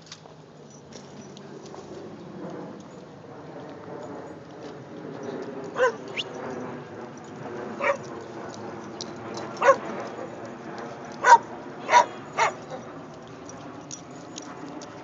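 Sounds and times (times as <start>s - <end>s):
dog barking: 5.8s - 6.2s, 7.8s - 8.0s, 9.6s - 10.3s, 11.2s - 12.8s
dog's high rising whine: 5.8s - 6.8s.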